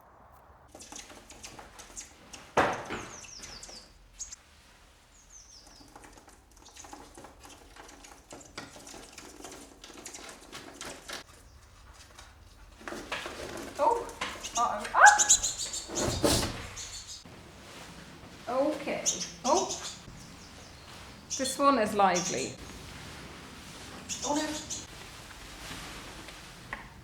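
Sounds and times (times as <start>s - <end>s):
rustling twigs and leaves: 0.7s - 27.0s
bird cheeping: 14.4s - 17.2s, 19.0s - 22.6s.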